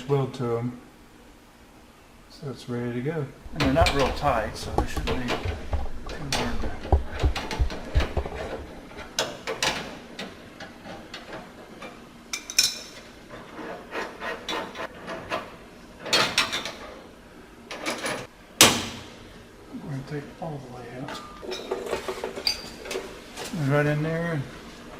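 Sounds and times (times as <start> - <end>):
hand tools clinking and rattling: 3.5 - 13.0.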